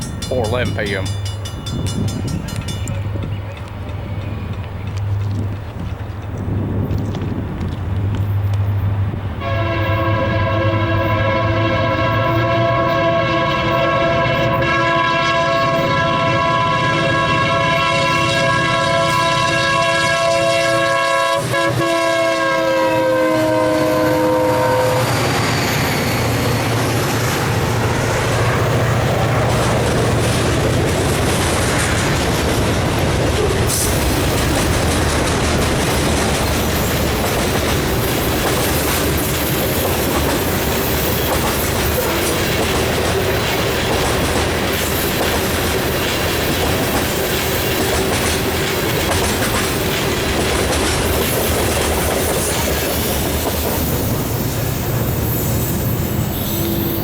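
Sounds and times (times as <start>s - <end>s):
clickety-clack over rail joints: 0.0s - 10.1s, 25.1s - 54.6s
wheels rumbling on rail: 0.0s - 57.0s
locomotive horn chord: 9.4s - 25.3s, 56.3s - 57.0s.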